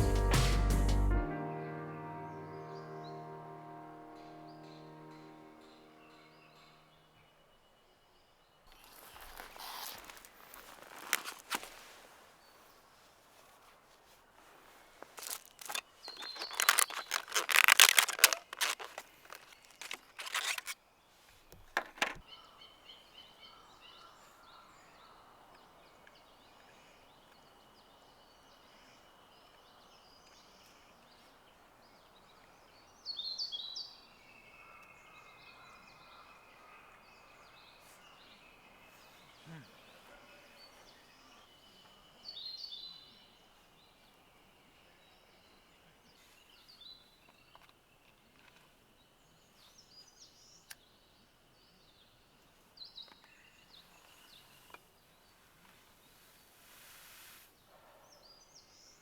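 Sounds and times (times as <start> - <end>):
crackling handling noise: 8.7 - 12.1, 14.4 - 20.8.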